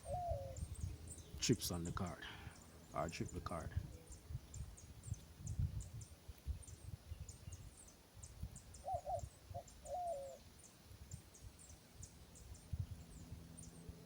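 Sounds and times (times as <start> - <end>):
dove cooing: 0.0 - 0.8, 8.7 - 10.5.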